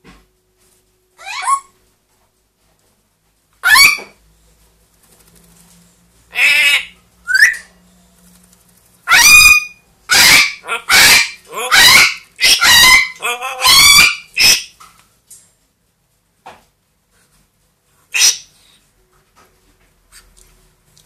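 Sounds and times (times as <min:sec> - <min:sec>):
parrot squawking: 0:01.2 - 0:01.7, 0:03.6 - 0:04.2, 0:06.3 - 0:07.7, 0:09.0 - 0:14.8, 0:18.1 - 0:18.6.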